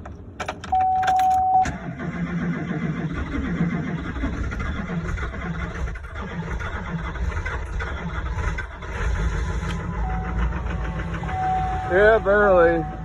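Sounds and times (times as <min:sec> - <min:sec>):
diesel engine cranking and starting: 0:00.0 - 0:13.0.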